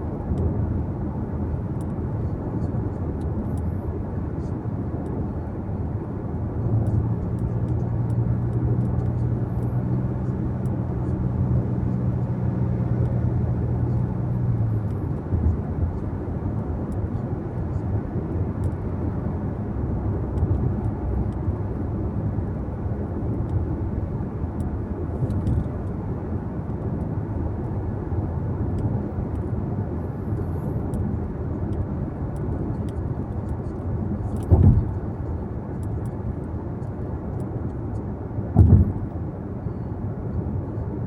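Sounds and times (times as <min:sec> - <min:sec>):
tyre and engine rumble: 0:01.8 - 0:41.0
car thumps: 0:34.4 - 0:35.0, 0:38.6 - 0:39.1.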